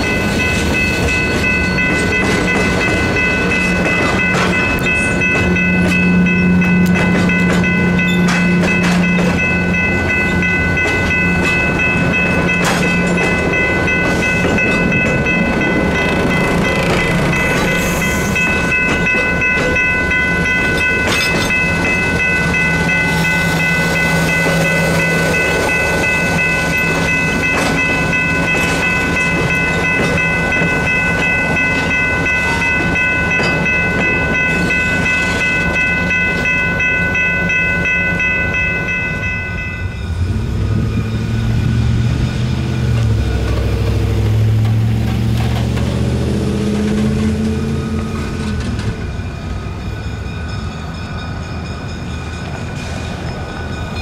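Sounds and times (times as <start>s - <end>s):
high ringing tone: 0.0s - 42.0s
diesel locomotive engine rumble: 0.0s - 54.0s
railcar wheels rumbling on rail: 0.0s - 54.0s.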